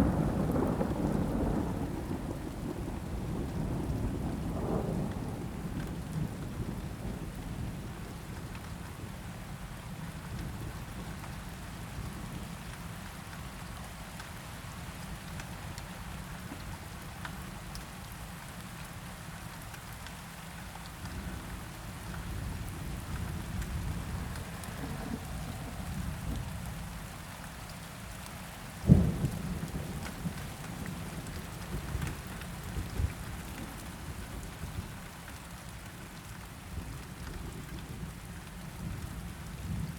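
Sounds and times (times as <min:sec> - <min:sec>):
thunder rumbling: 0:00.0 - 0:05.7, 0:23.4 - 0:26.7, 0:28.9 - 0:34.0
steady rain: 0:00.0 - 0:39.9.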